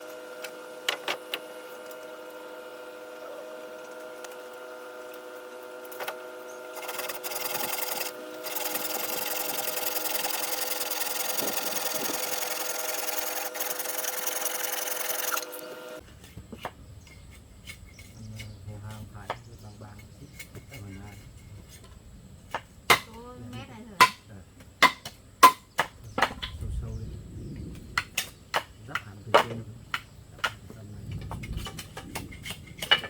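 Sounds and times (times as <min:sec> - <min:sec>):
electric power tool running: 0:00.0 - 0:16.0.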